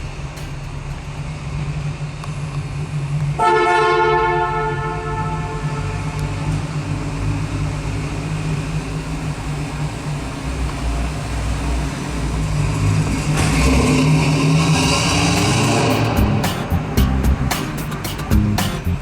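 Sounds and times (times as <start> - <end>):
car engine idling: 0.0 - 3.4, 14.6 - 19.0
car horn tone: 3.4 - 6.4.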